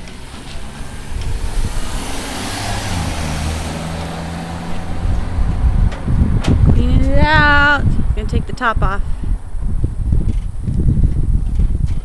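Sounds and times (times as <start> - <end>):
vehicle engine driving past: 0.0 - 8.2
road and tyre noise: 0.0 - 12.0.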